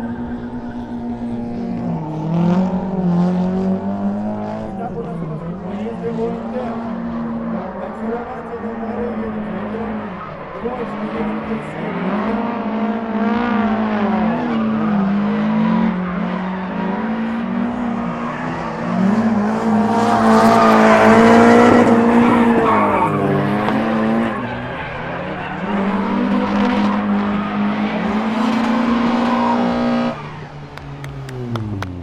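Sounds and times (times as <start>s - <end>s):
car engines revving: 0.0s - 32.0s
tyres squealing: 13.6s - 32.0s.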